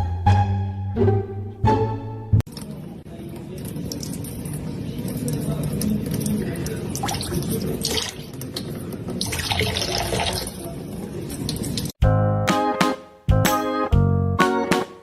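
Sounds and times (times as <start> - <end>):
running splashing water: 2.5 - 12.0
music with plucked notes: 12.0 - 15.0.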